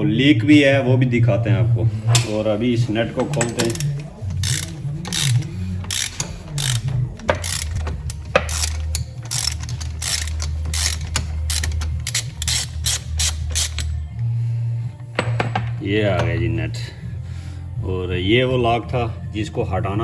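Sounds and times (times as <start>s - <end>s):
ratchet wrench clicking: 2.1s - 14.0s.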